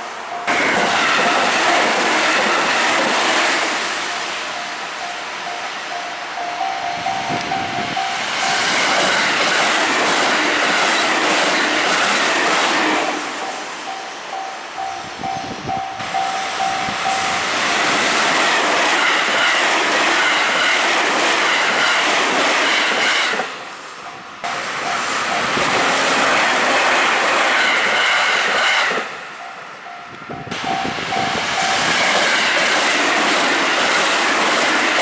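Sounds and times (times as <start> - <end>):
electric train passing: 0.0 - 35.0
level crossing bells dinging: 4.2 - 8.6.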